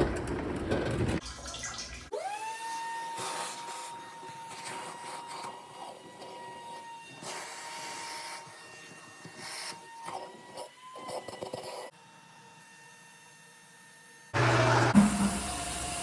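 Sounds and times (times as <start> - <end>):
water hissing and running: 14.4 - 16.0.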